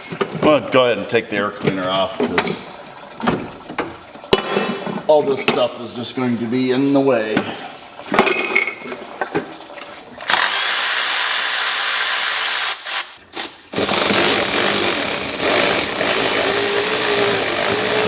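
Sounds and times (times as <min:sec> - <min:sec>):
handheld power tool running: 0:10.3 - 0:18.0.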